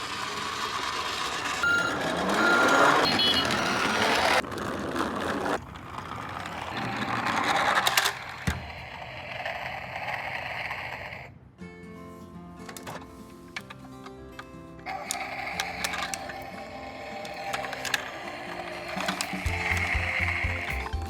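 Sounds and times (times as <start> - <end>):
truck engine running: 0.0 - 4.4
reversing alarm beeping: 1.6 - 4.4.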